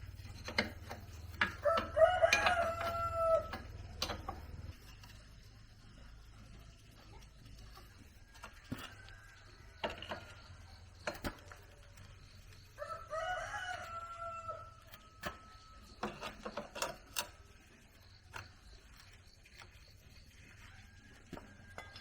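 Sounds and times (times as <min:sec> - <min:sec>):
sharp clicks and knocks: 0:00.1 - 0:05.3, 0:06.9 - 0:12.7, 0:14.8 - 0:20.0
rooster crowing: 0:01.4 - 0:04.5, 0:12.6 - 0:16.0.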